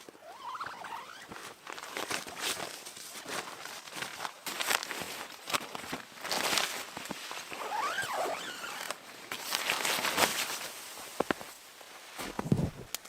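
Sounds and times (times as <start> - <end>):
crunching and rustling: 0.0 - 13.0
short rising and falling squeak: 0.2 - 1.3.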